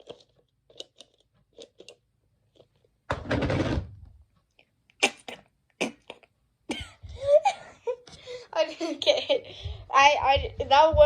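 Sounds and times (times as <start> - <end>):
mouth clicks: 4.9 - 6.4.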